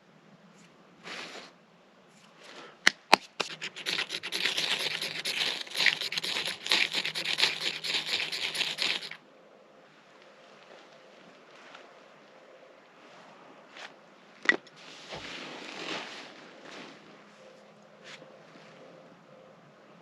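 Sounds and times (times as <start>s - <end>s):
blade scraping hard: 3.4s - 9.2s.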